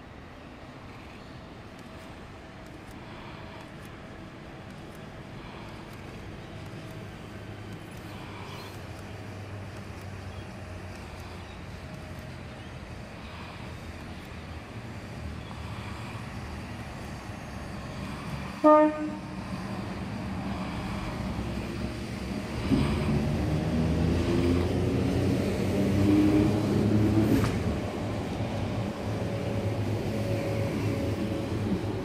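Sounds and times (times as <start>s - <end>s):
train rumbling past: 0.0s - 32.0s
train horn toot: 18.6s - 19.6s.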